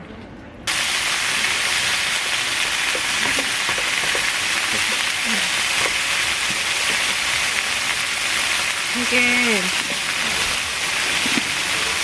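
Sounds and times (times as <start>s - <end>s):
meat sizzling in a pan: 0.7s - 12.0s.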